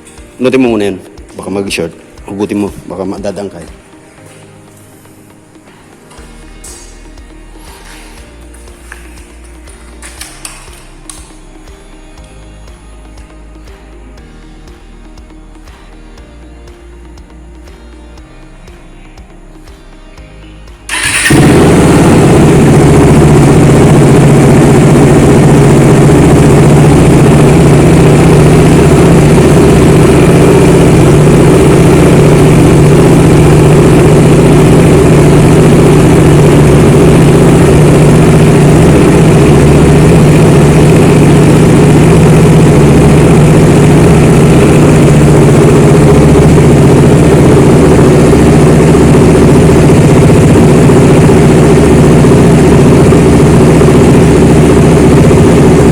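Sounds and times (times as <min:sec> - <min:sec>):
motorcycle engine running: 0:05.5 - 0:15.8, 0:20.8 - 0:55.9.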